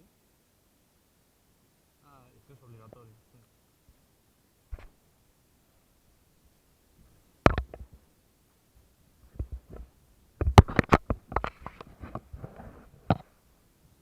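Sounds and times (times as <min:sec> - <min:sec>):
soft rustle: 0:02.2 - 0:14.0
sharp knocks and thumps: 0:04.7 - 0:04.9, 0:07.4 - 0:08.0, 0:09.2 - 0:13.3.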